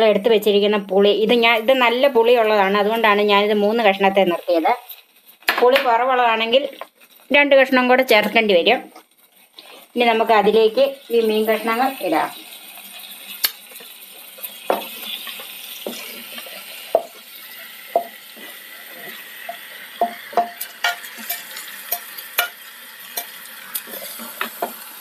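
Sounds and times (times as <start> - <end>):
fish sizzling in hot oil: 0.0 - 25.0
spoon scraping a dish: 17.9 - 22.6.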